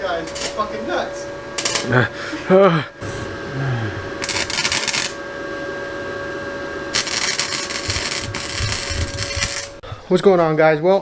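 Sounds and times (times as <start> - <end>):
power tool whining: 1.6 - 9.8
harsh grinding hiss: 3.0 - 5.2, 6.9 - 9.8.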